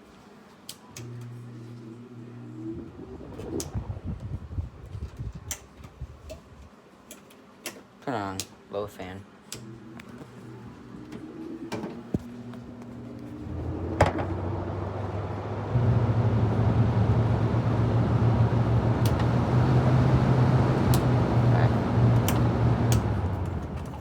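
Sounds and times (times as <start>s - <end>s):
air conditioner motor hum: 0.0s - 24.0s
air conditioner click: 18.8s - 20.0s, 20.6s - 24.0s.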